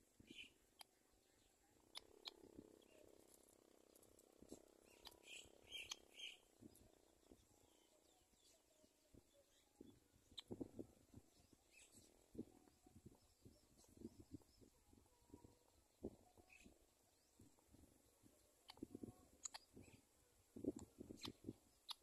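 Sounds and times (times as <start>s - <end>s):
faint high bird chirps: 0.2s - 22.0s.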